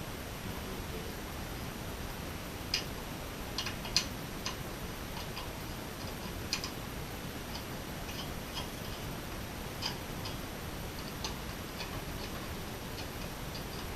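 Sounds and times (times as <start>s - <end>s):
light clicks of small parts: 9.8s - 10.4s.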